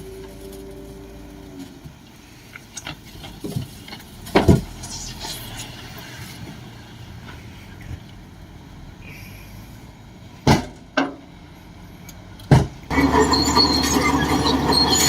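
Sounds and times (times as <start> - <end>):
bulldozer diesel engine running: 12.9 - 15.0.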